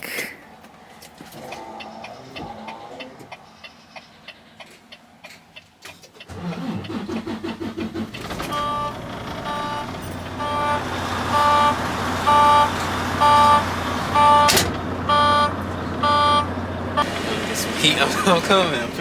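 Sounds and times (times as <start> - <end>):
truck diesel engine cranking and idling: 5.8 - 19.0
dashboard warning beeps: 8.4 - 19.0.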